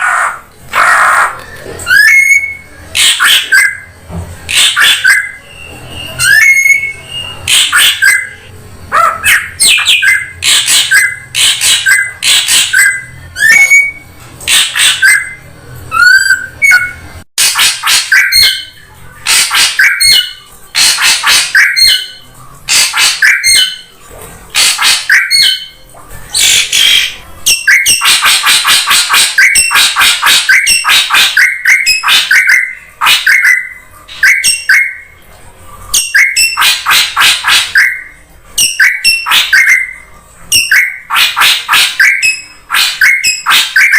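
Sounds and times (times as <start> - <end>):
harsh rasping bird calls: 0.0 - 3.9, 4.5 - 23.9, 24.5 - 35.2, 35.9 - 43.9
bird chirps: 4.5 - 23.9, 36.0 - 43.9
upward-sweeping whistles: 5.0 - 7.4.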